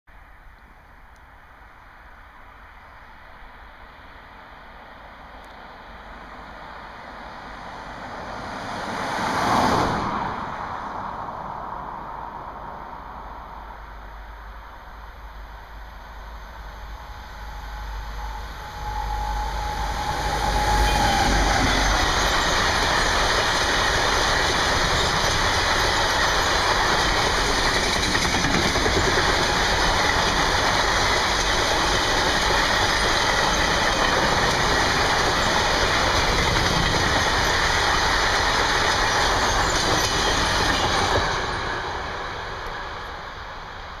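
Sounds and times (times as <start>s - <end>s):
locomotive steady tone: 12.0s - 44.0s
train wagons rolling by: 13.8s - 44.0s.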